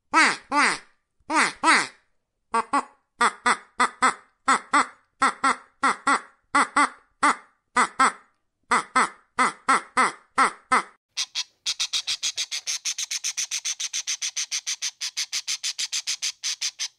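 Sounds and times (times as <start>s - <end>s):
young ducks quacking: 10.7s - 16.9s.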